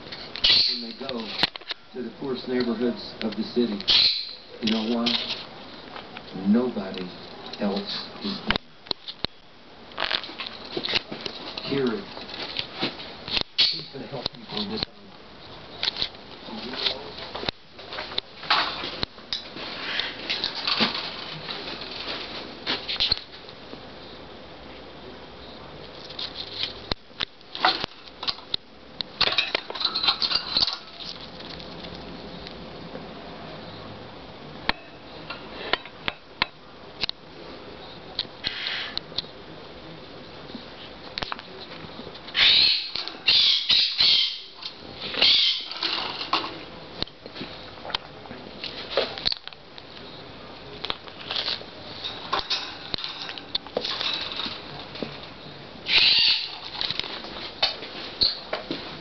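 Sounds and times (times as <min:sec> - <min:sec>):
parrots squawking: 0:00.4 - 0:01.0, 0:03.9 - 0:04.5, 0:13.6 - 0:13.9, 0:19.7 - 0:20.3, 0:38.4 - 0:39.0, 0:42.3 - 0:46.3, 0:55.8 - 0:56.8
parrots rustling and clicking: 0:02.6 - 0:14.9, 0:15.8 - 0:23.6, 0:25.8 - 0:32.6, 0:41.1 - 0:48.0, 0:50.8 - 0:58.8
small clicks and scratches: 0:25.9 - 0:28.6.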